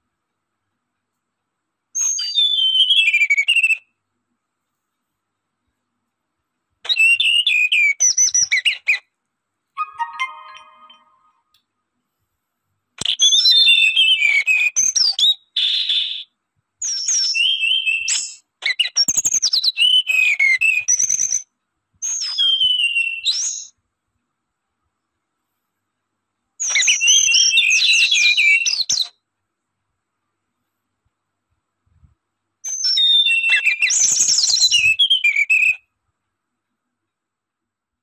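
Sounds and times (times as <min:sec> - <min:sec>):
songbird chirping and twittering: 0:02.0 - 0:03.9, 0:09.8 - 0:11.6, 0:13.0 - 0:21.4, 0:22.0 - 0:23.8, 0:26.6 - 0:29.1, 0:32.6 - 0:35.8.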